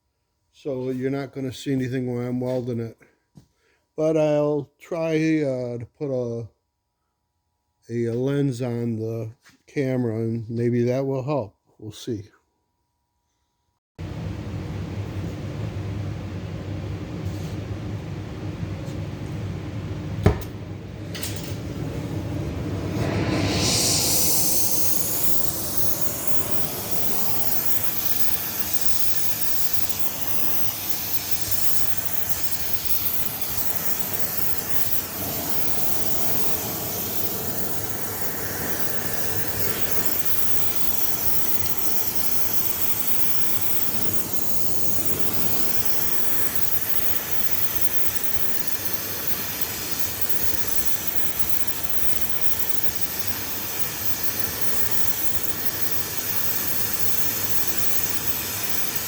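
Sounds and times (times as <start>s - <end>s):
welding hiss: 22.4s - 59.0s.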